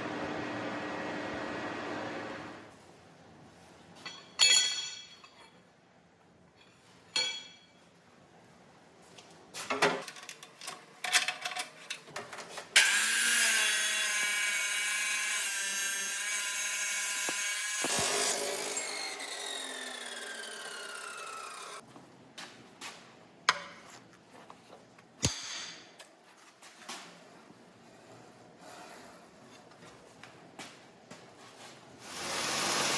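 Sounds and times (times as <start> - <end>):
knocks and clinks: 4.0 - 5.6
electric grinder running: 12.8 - 21.8.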